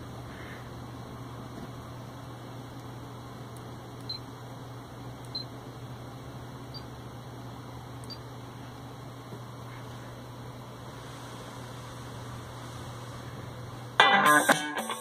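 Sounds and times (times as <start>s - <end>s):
low hum and hiss: 0.0s - 15.0s.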